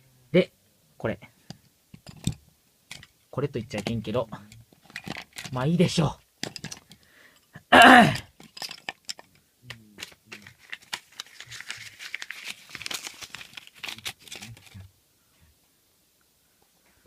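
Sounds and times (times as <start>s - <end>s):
small clicks and knocks: 1.4s - 5.6s, 6.4s - 7.1s, 8.3s - 11.3s
crinkling and rustling: 1.9s - 7.1s, 8.2s - 14.9s.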